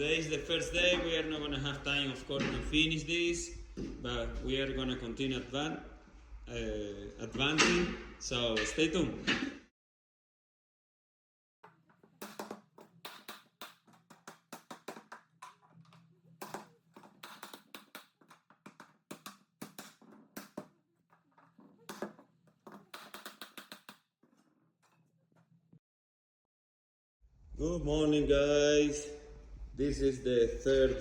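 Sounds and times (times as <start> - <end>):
light taps and knocks: 11.6 - 25.0.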